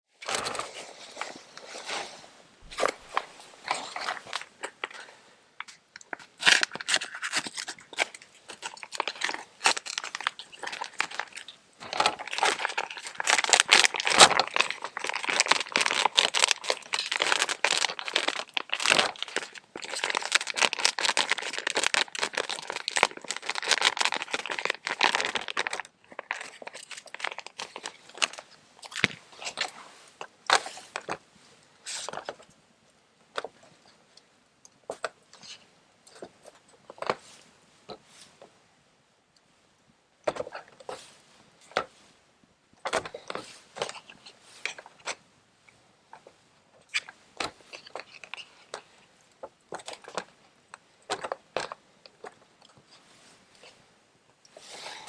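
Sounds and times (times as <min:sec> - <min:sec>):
crinkling and tearing handling: 0:00.2 - 0:31.2, 0:46.1 - 0:53.8.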